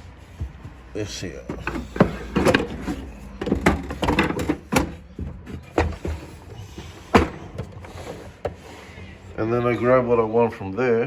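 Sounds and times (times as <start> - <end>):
wooden trays sliding on runners: 0.0 - 10.1
wooden knocks: 0.3 - 8.6.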